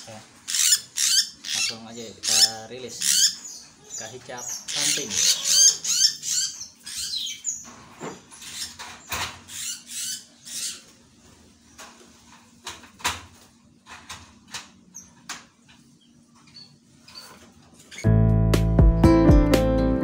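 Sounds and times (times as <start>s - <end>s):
rustling and scratching: 10.8s - 18.0s.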